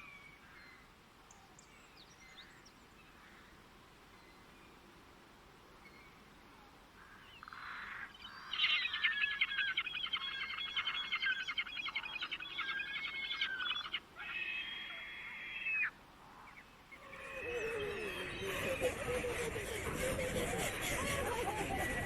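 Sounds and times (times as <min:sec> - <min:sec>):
songbird warbling song: 0:07.2 - 0:14.5.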